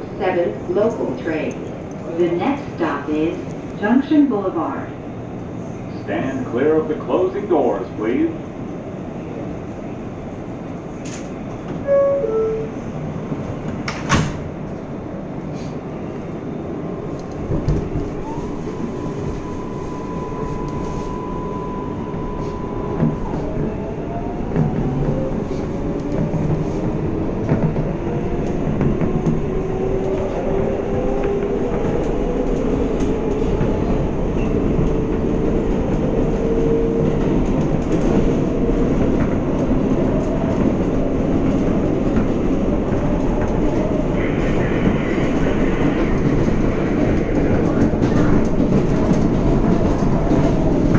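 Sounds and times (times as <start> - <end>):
train wheels rumbling: 0.0 - 50.9
subway doors knocking shut: 11.0 - 14.8, 17.4 - 18.2.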